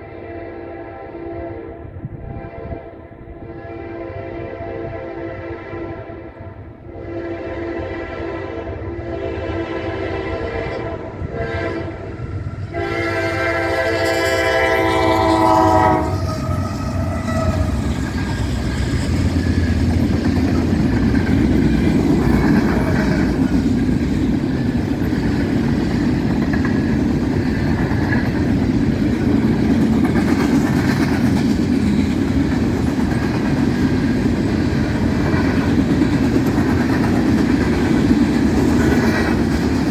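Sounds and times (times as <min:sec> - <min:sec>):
train horn blasts: 0:00.0 - 0:23.5
train wheels clattering on rails: 0:14.9 - 0:39.9.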